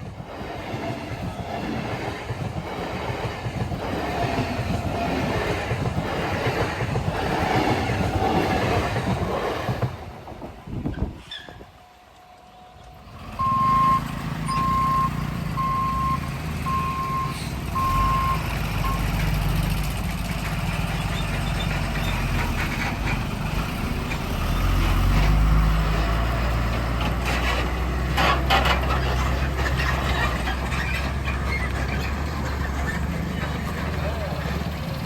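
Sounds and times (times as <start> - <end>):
low rumble of vehicle engines: 13.0 - 35.0
short electronic beeps: 13.4 - 19.1.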